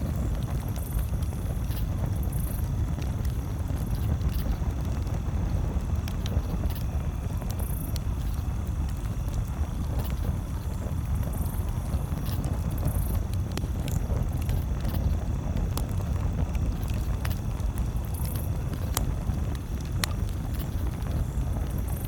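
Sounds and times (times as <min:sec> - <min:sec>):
campfire crackling: 0:00.0 - 0:22.0.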